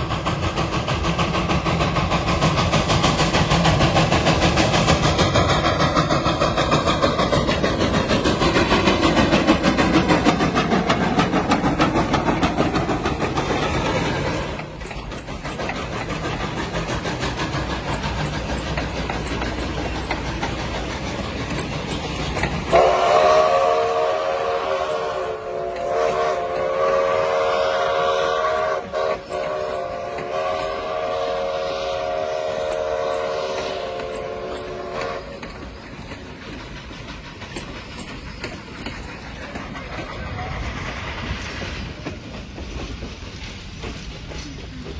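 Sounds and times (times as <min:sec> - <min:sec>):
train rumbling and wheel clatter: 0:00.0 - 0:44.9
train horn warning blast: 0:22.7 - 0:35.4.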